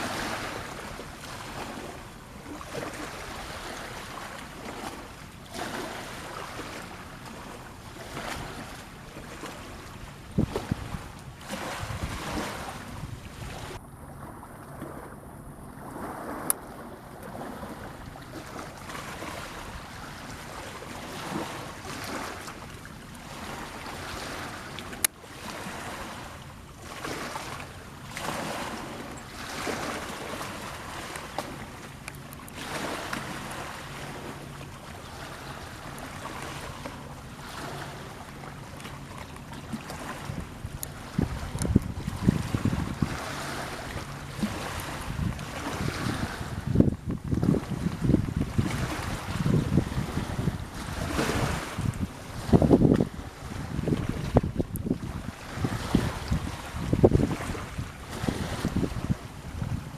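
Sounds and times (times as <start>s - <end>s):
faint low engine hum: 0.0s - 59.9s
sea water washing: 0.0s - 59.9s
wind on microphone: 9.8s - 22.3s, 39.9s - 59.9s.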